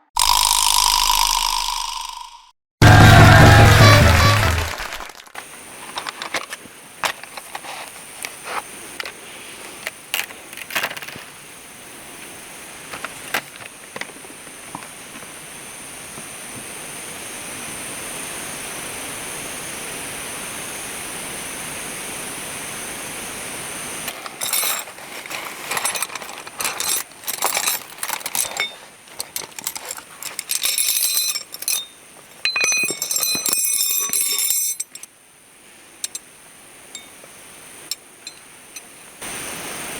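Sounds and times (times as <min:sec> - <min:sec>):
steady hiss: 0:05.4 - 0:30.8, 0:31.4 - 0:39.9
small metal items clinking: 0:24.1 - 0:35.1.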